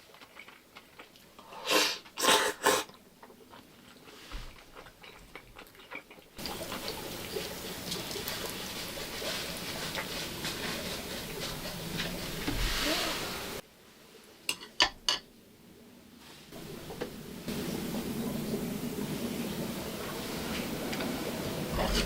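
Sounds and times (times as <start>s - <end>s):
tableware clinking: 14.5s - 15.3s.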